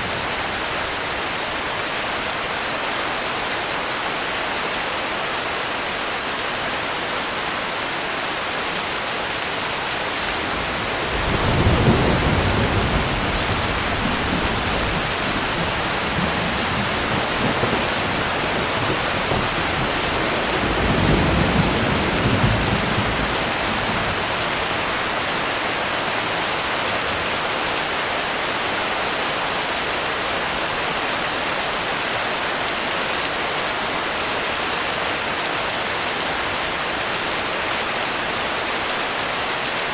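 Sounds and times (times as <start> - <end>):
heavy rain: 0.0 - 39.9
thunder rumbling: 10.2 - 24.9.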